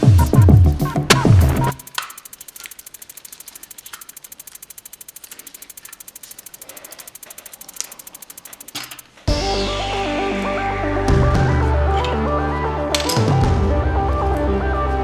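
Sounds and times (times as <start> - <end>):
rapid mechanical clicking: 0.0 - 9.0.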